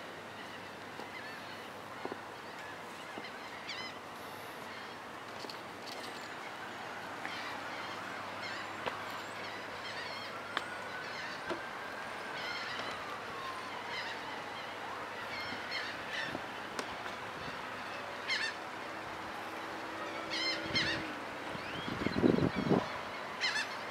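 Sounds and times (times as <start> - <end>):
birds squeaky calls: 18.2 - 18.6, 20.2 - 23.9.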